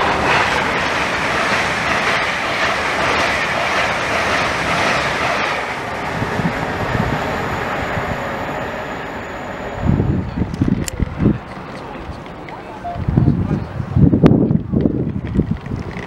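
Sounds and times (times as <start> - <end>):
wheels clickety-clack: 0.0 - 7.2, 10.4 - 12.8, 14.4 - 16.0
high-speed train rushing past: 0.0 - 16.0.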